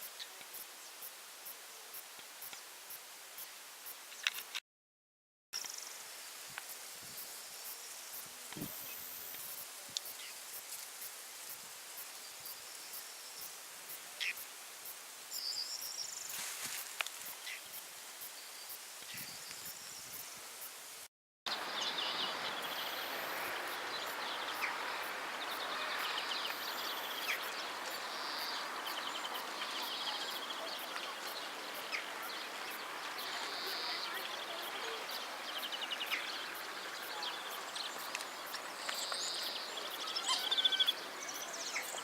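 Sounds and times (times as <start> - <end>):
steady hiss: 0.0 - 4.6, 5.6 - 42.0
small birds chirping and trilling: 21.5 - 42.0.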